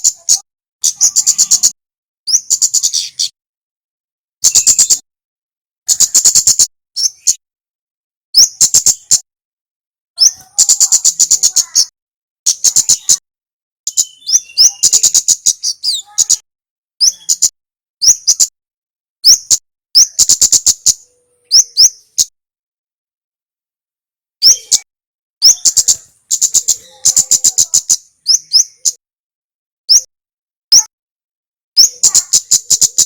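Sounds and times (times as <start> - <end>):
songbird chattering song: 0.0 - 3.4, 4.4 - 5.1, 5.8 - 7.4, 8.4 - 9.3, 10.2 - 13.2, 13.9 - 18.6, 19.2 - 22.4, 24.4 - 29.0, 29.9 - 30.1, 30.7 - 30.9, 31.8 - 33.0.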